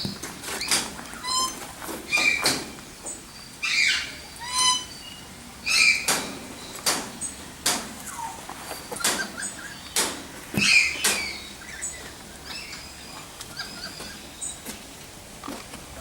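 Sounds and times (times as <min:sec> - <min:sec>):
birds chirping: 0:00.0 - 0:15.1
sharp clicks or knocks: 0:06.0 - 0:08.0, 0:09.0 - 0:11.3.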